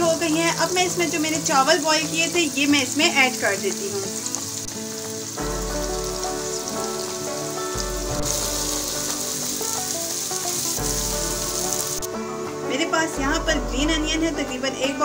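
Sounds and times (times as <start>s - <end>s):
vegetables sizzling in hot oil: 0.0s - 12.1s
background music: 0.0s - 15.0s.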